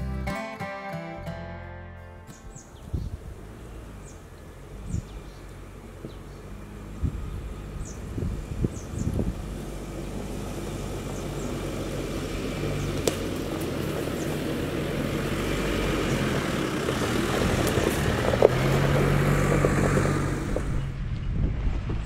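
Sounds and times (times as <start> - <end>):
car engine running at low speed: 2.3 - 22.0
tyres cracking over stones and twigs: 12.7 - 14.6.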